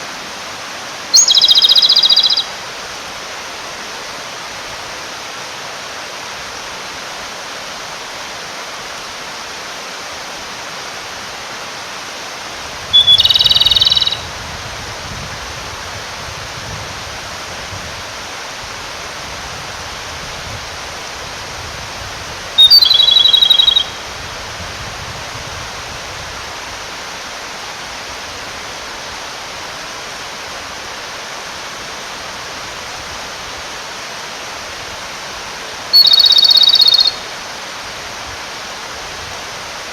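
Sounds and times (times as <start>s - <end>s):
mountain stream rushing: 0.0s - 39.9s
bird singing a rapid trill: 1.2s - 2.5s, 13.0s - 14.3s, 22.6s - 24.0s, 36.0s - 37.2s.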